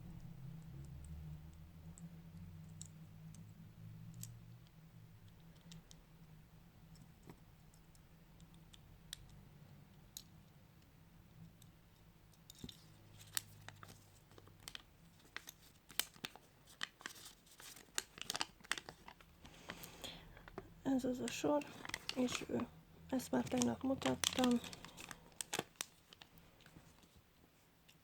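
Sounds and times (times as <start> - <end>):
faint low hum: 0.0 - 17.6
plastic pieces clicking together: 21.3 - 26.8.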